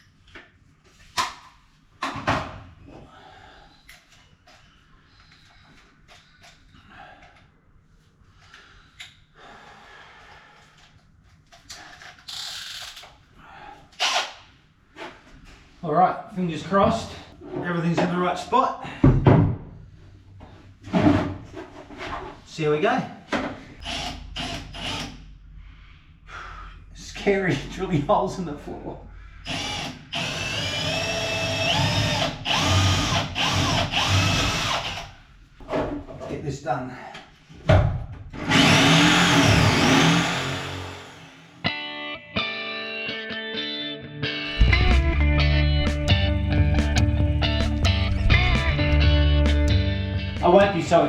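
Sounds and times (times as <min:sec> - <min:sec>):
power drill boring into wood: 0:23.8 - 0:25.2, 0:29.5 - 0:35.1, 0:38.5 - 0:41.5.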